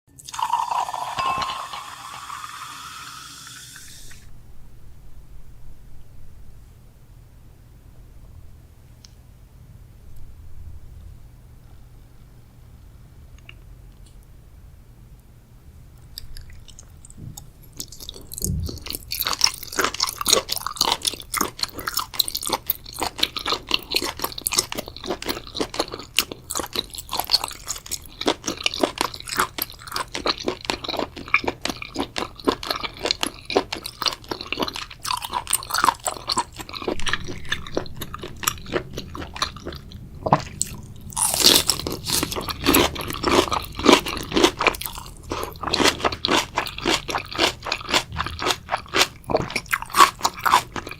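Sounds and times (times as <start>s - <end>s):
wet crunchy chewing: 16.0s - 50.9s.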